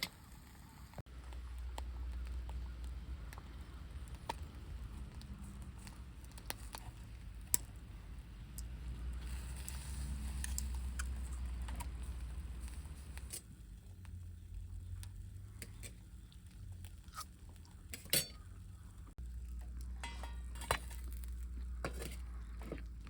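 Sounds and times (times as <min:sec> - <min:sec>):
low steady rumble: 0:00.2 - 0:23.0
cookware clinking and knocking: 0:20.0 - 0:20.8.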